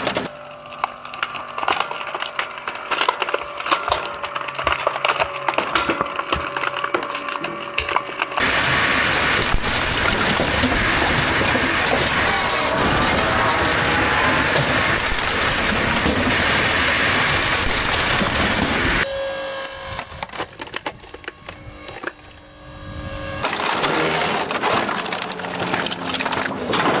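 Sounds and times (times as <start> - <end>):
press crushing wood: 0.0 - 27.0.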